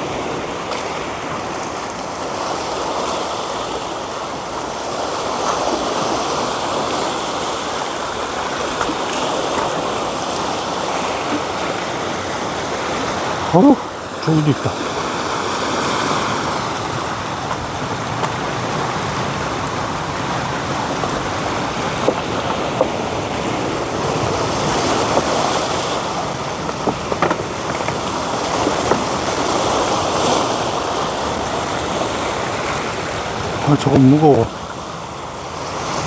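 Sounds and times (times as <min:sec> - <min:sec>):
sea waves washing on shore: 0:00.0 - 0:36.0
light knocks: 0:26.6 - 0:29.1.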